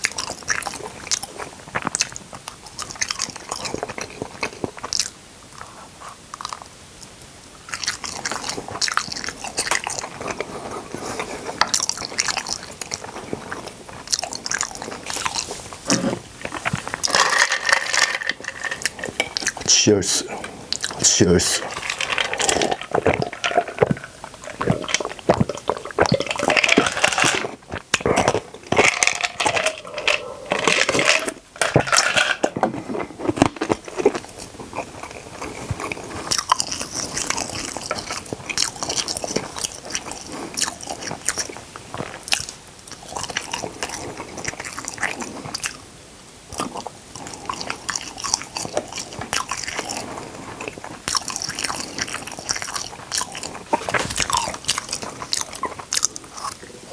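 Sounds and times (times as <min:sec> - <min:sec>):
crunchy bites and chewing: 0:20.3 - 0:31.4, 0:32.6 - 0:45.8, 0:46.5 - 0:56.6.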